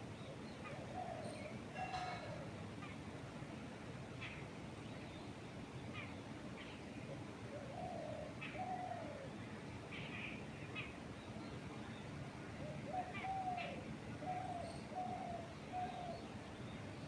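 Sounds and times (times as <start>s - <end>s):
longer lower bird calls: 9.9s - 17.0s.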